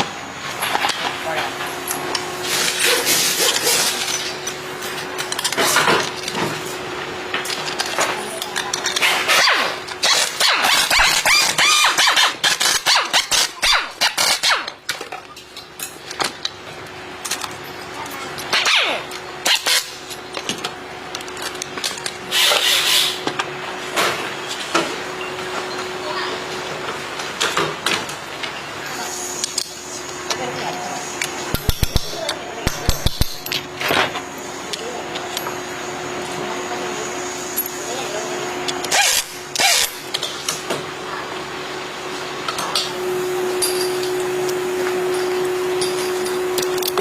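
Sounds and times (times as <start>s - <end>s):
steady machine hum: 0.0s - 47.0s
workshop knocks and clicks: 31.5s - 34.2s.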